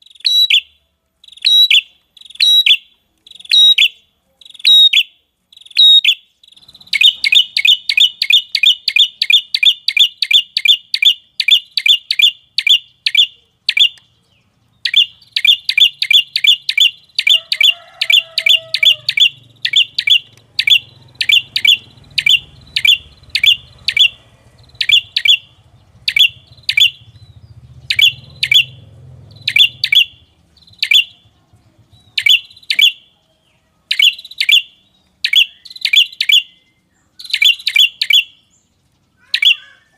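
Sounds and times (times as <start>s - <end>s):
bird chip notes: 5.7s - 31.4s.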